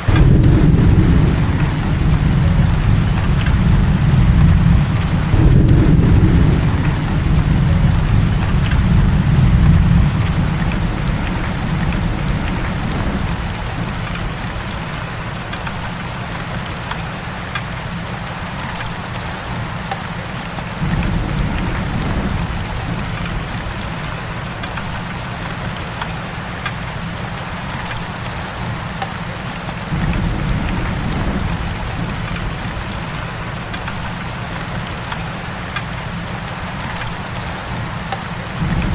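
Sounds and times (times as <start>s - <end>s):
low rumbles: 0.0s - 15.2s, 20.8s - 24.2s, 29.9s - 34.2s, 38.6s - 38.9s
heavy rain falling: 0.0s - 38.9s.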